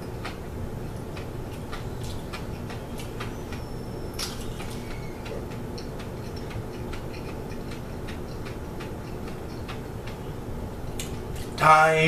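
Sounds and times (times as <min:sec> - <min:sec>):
steady low hum: 0:00.0 - 0:12.0
egg shell crunching while chewed: 0:01.0 - 0:03.3, 0:04.2 - 0:10.2.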